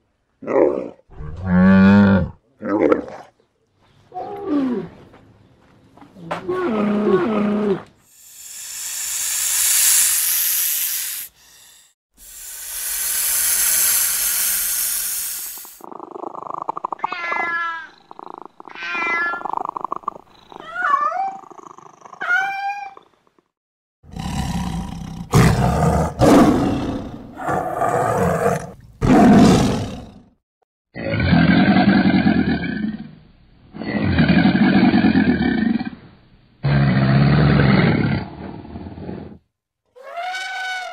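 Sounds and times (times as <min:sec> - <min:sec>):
rattlesnake hissing buzz: 0:08.1 - 0:15.9
tiger growling roars: 0:24.1 - 0:30.2.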